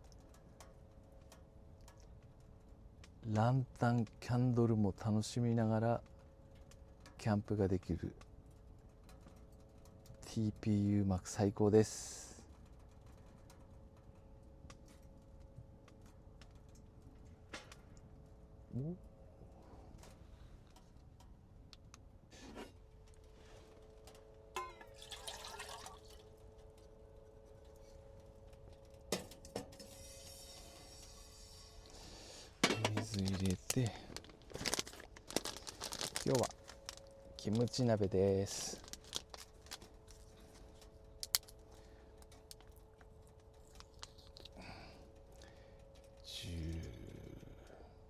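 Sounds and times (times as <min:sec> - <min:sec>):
faint steady hum: 0:00.0 - 0:48.0
water pouring into a pot: 0:24.9 - 0:26.3, 0:29.8 - 0:31.8.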